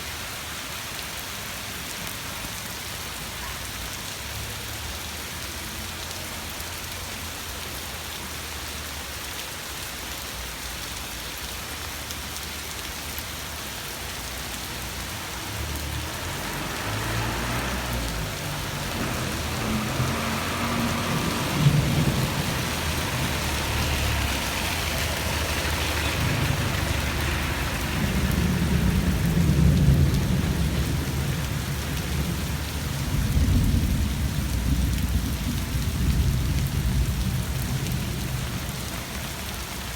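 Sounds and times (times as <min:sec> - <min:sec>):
rain falling: 0:00.0 - 0:39.9
rolling thunder: 0:18.4 - 0:25.0, 0:25.8 - 0:38.8.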